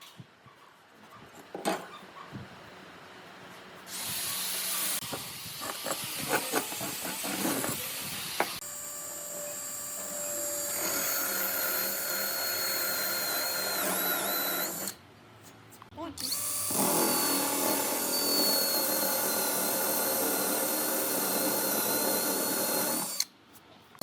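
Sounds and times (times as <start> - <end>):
power tool motor whine: 3.9 - 15.0, 16.2 - 23.3.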